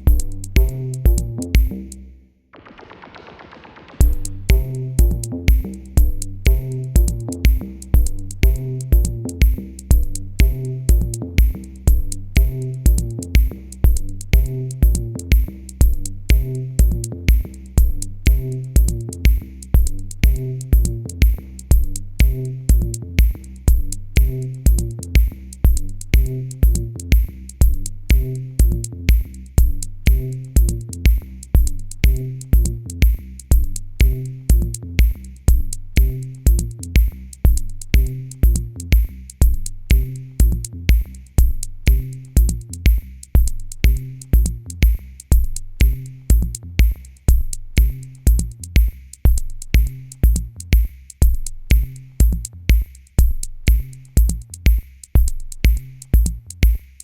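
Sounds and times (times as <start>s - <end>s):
drum machine kicks: 0.0s - 2.0s, 2.6s - 57.0s
hi-hat ticks: 0.0s - 2.0s, 4.0s - 57.0s
repeating bass line: 0.0s - 2.0s, 4.0s - 46.8s.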